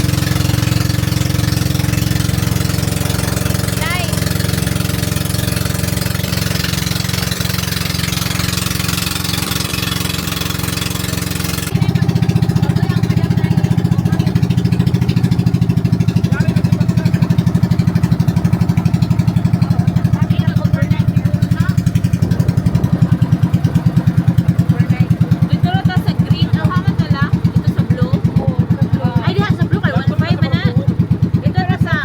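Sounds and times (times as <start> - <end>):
pulsing engine note: 0.0 - 32.0
vehicle engine running: 0.0 - 32.0.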